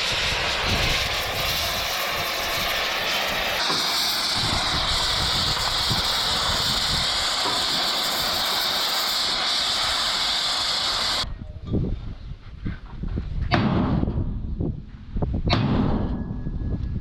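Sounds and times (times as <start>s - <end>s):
compressed air hissing: 0.0s - 11.2s.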